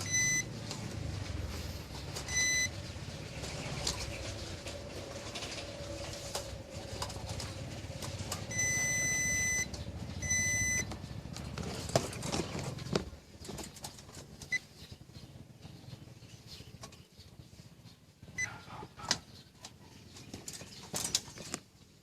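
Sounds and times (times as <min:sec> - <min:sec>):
electronic beeps: 0:00.0 - 0:00.5, 0:02.2 - 0:02.8, 0:08.4 - 0:10.9
low hum: 0:00.0 - 0:13.4.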